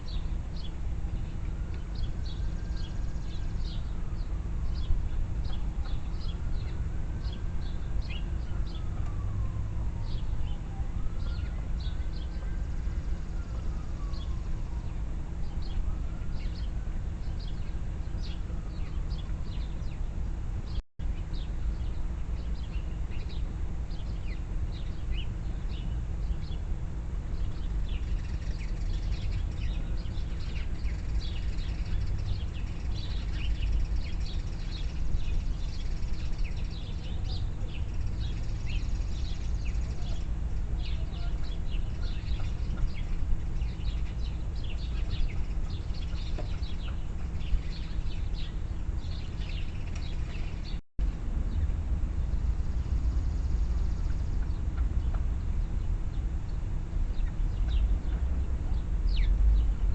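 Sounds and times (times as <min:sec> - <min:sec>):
steady low rumble: 0:00.0 - 0:59.9
small birds chirping: 0:27.4 - 0:50.8, 0:51.5 - 0:59.8.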